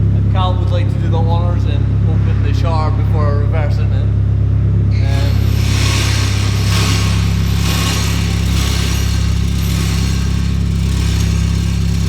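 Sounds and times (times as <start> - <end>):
car engine droning: 4.9 - 12.0
pulsing hiss: 5.1 - 12.0.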